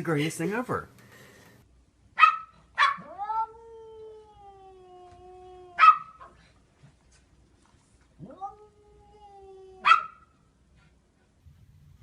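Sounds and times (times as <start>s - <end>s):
pet howling: 2.8s - 6.3s, 8.2s - 10.3s.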